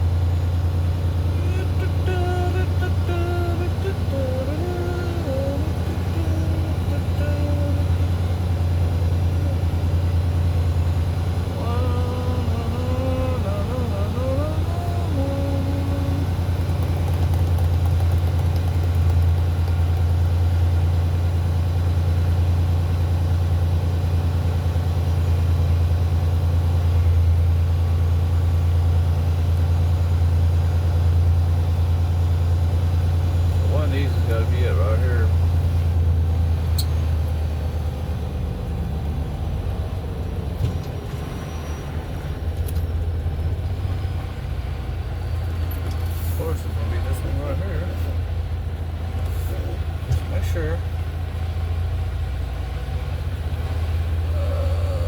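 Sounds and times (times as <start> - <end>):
truck diesel engine droning: 0.0 - 55.0
faint voice: 54.3 - 55.0.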